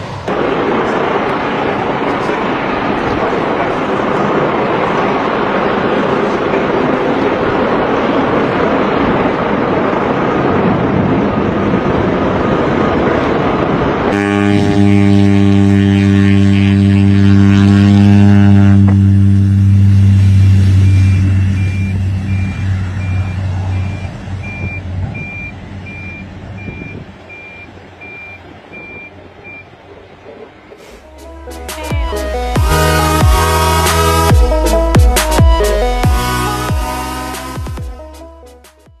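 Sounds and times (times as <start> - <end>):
loud rushing aircraft noise: 0.0 - 38.3
propeller plane engine drone: 0.0 - 38.4
high evenly spaced beeps: 23.9 - 29.6
electronic music: 31.1 - 39.0.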